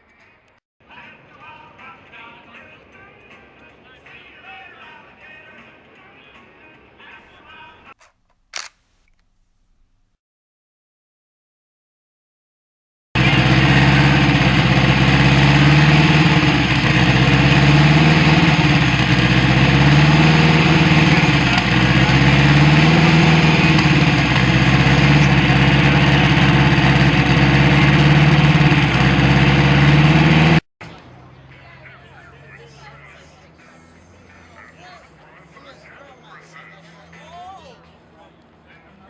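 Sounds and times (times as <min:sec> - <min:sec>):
car engine idling: 0:13.2 - 0:30.6.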